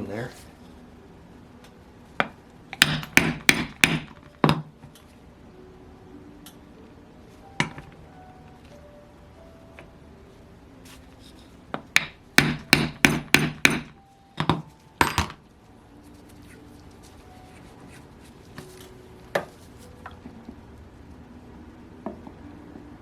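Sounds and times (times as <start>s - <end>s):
hammer tapping on metal: 2.8s - 4.2s, 12.0s - 14.0s.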